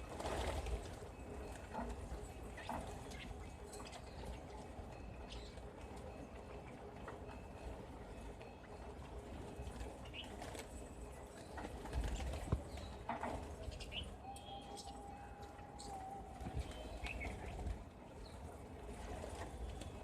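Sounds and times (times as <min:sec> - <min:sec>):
birds chirping: 0:11.4 - 0:18.6.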